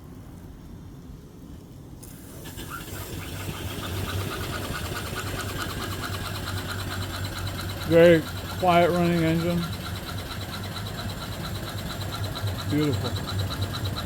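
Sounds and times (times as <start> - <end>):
steam engine running: 2.0 - 14.0.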